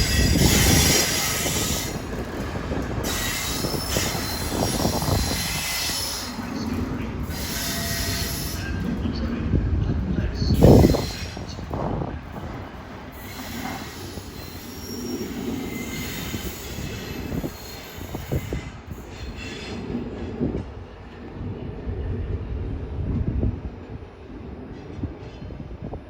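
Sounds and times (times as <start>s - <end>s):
train wheels squealing: 0.0s - 2.4s, 3.0s - 9.0s, 10.4s - 11.9s, 13.1s - 20.1s
train clunks: 0.0s - 21.0s
train rumbling on rails: 0.0s - 26.0s.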